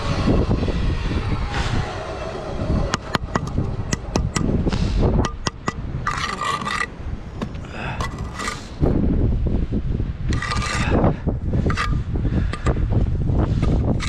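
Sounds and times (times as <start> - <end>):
steel tapping on brick: 2.9 - 4.5, 5.2 - 8.6
trowel scraping mortar: 2.9 - 8.9, 10.3 - 11.0, 11.6 - 12.8.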